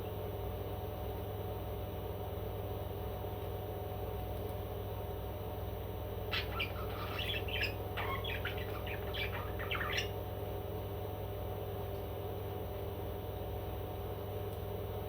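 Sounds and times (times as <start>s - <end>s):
steady low hum: 0.0s - 15.0s
parrot squawks and chirps: 6.3s - 10.2s.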